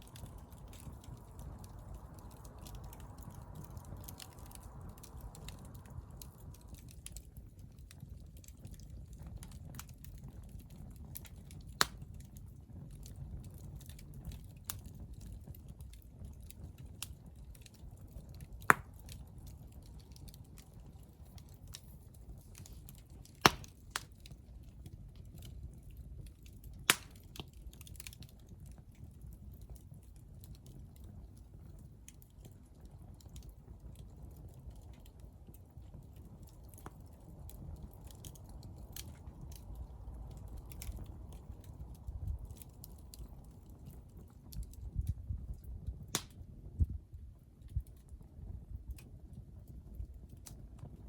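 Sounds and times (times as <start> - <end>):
fire rumbling: 0.0 - 51.0
wood popping: 23.4 - 23.8.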